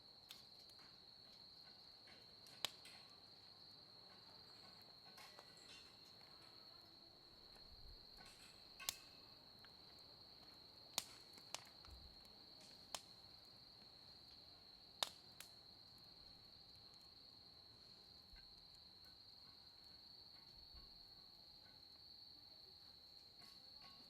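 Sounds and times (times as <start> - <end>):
firewood crackling and popping: 0.0 - 21.0
cricket trilling: 0.5 - 24.0.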